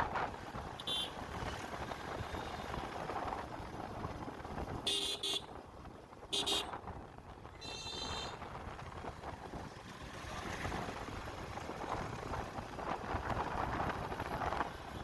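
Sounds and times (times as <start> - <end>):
wind and road rumble: 0.0 - 15.0
vehicle horn honking: 0.8 - 1.2, 4.8 - 5.5, 6.3 - 6.7, 7.6 - 8.4.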